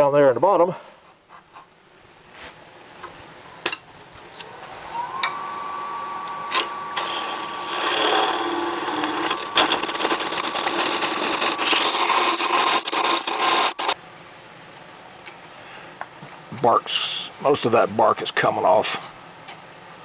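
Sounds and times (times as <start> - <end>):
lathe motor whining: 4.1 - 14.0
tool scraping spinning wood: 4.2 - 14.0.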